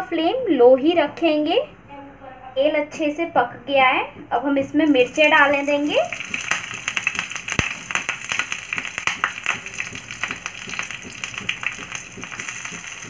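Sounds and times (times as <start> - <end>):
chillies sizzling in hot oil: 4.8 - 13.0.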